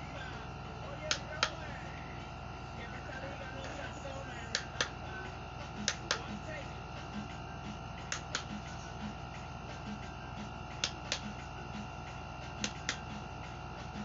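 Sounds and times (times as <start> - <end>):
desk fan motor hum: 0.0 - 14.0
sharp clicks: 1.1 - 1.6, 4.5 - 5.0, 5.8 - 6.3, 10.8 - 11.3, 12.6 - 13.1.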